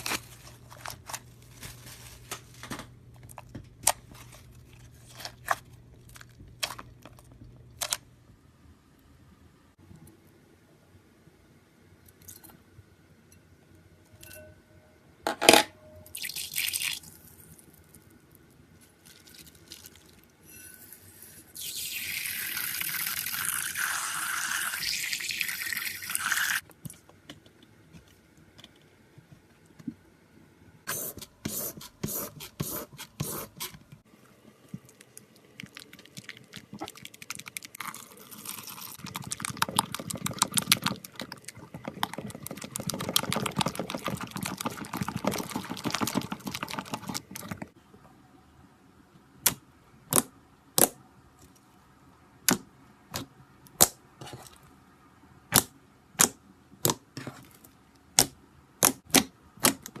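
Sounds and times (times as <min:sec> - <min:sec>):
slime ball squishy crackling: 0:35.0 - 0:47.6.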